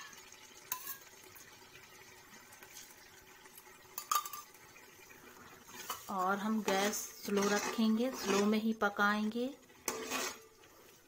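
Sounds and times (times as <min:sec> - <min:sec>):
utensil clinking against pan: 0:00.7 - 0:01.1, 0:04.0 - 0:04.5.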